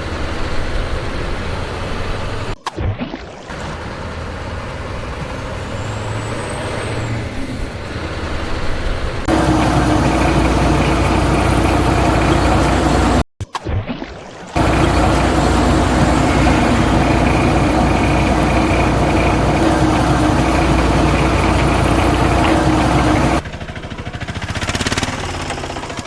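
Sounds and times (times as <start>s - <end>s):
steady hum: 9.3s - 13.2s, 14.6s - 23.4s
vehicle engine running: 9.3s - 13.3s, 14.6s - 26.0s.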